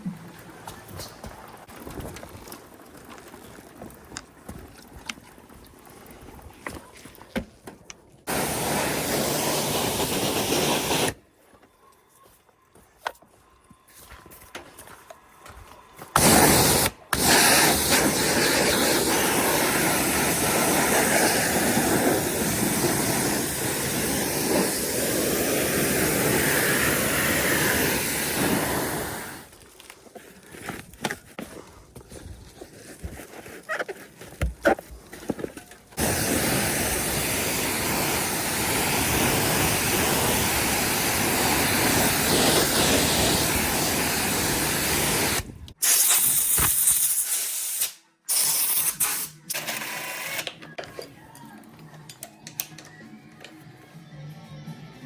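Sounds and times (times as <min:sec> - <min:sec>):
spraying hiss: 0:08.3 - 0:11.2, 0:16.1 - 0:29.5, 0:36.0 - 0:49.3.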